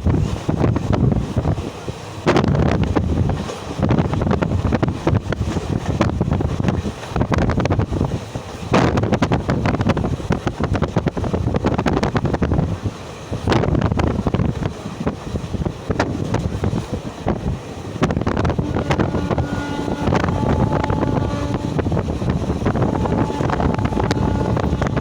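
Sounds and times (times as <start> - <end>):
train rumbling and rattling: 0.0 - 25.0
wind buffeting microphone: 0.0 - 25.0.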